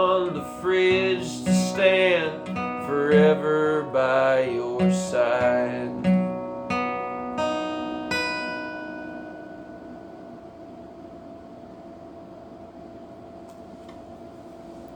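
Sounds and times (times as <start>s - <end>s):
acoustic guitar strums: 0.0s - 10.1s.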